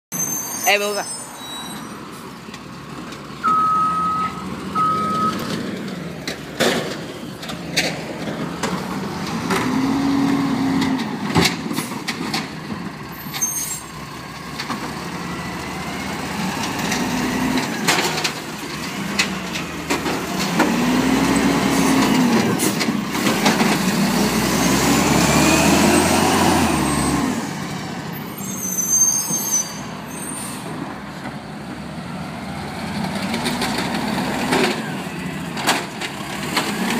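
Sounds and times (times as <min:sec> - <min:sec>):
garbage truck diesel engine revving: 0:02.9 - 0:13.1, 0:13.9 - 0:28.1, 0:31.6 - 0:36.9
short beeps: 0:03.4 - 0:05.4.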